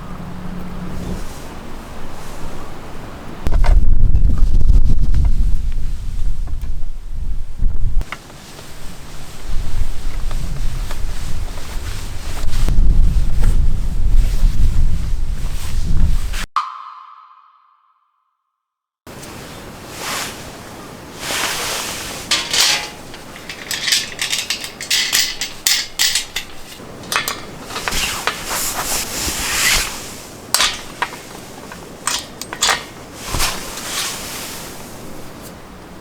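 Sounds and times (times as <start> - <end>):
rustling: 8.0 - 16.3, 19.1 - 35.6
objects clattering and clinking: 21.3 - 34.1.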